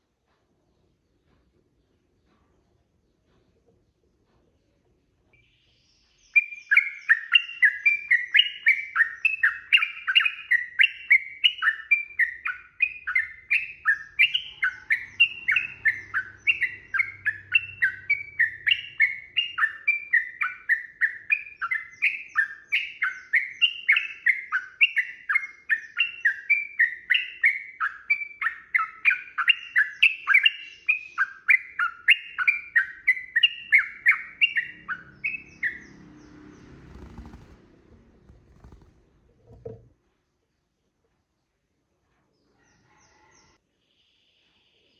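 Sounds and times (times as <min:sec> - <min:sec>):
bird singing chattering notes: 0:05.4 - 0:37.6.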